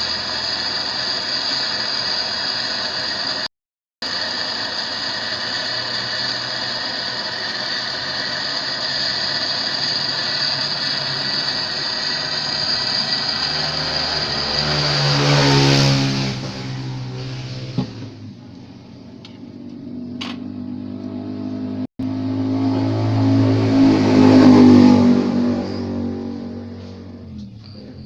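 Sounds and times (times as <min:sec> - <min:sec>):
steady mechanical whir: 0:00.0 - 0:28.0
motor vehicle passing by: 0:12.3 - 0:28.0.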